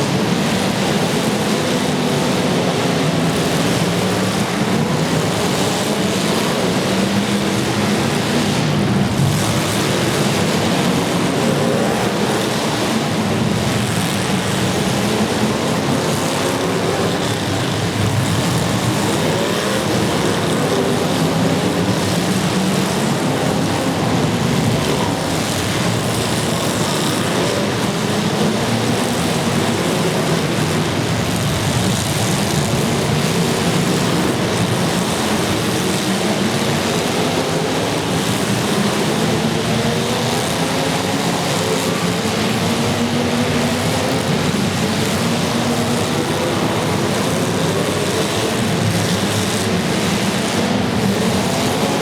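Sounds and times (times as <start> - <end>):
car engines revving: 0.0 - 52.0.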